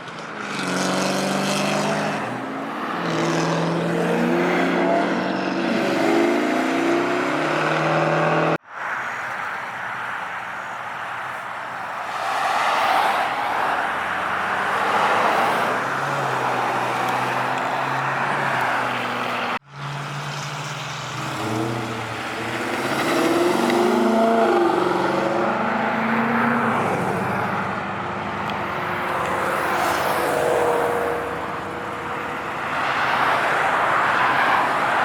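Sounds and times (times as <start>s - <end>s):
car engines running: 0.0s - 35.0s
engine revving: 0.4s - 8.6s, 14.4s - 35.0s.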